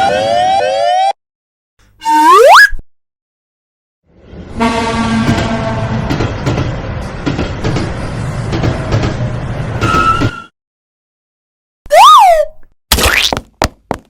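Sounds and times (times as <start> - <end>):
train rumbling: 4.1 - 10.5
train horn: 4.5 - 6.1.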